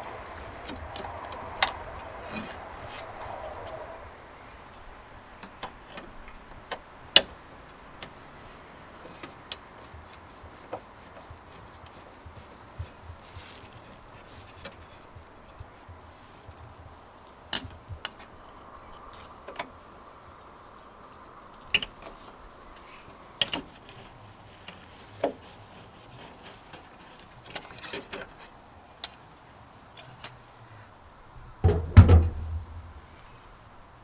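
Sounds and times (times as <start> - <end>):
clatter and thud: 31.6 - 33.1.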